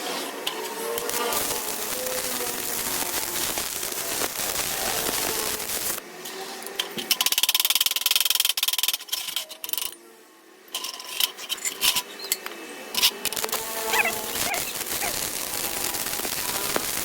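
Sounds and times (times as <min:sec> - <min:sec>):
fast even crackle on steel: 0:00.9 - 0:06.0, 0:13.0 - 0:17.0
metal clicks and scrapes: 0:06.6 - 0:10.0, 0:10.7 - 0:13.7.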